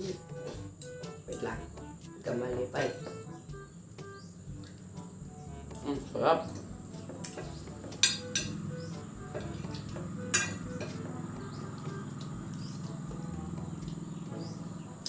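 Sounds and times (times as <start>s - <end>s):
low background hum: 0.0s - 15.0s
cutlery clinking on a plate: 7.2s - 8.6s, 9.7s - 11.0s.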